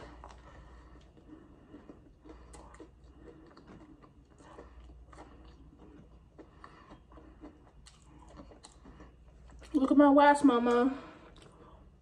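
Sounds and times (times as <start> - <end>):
chewing and mouth smacks: 0.0 - 10.0, 10.7 - 12.0.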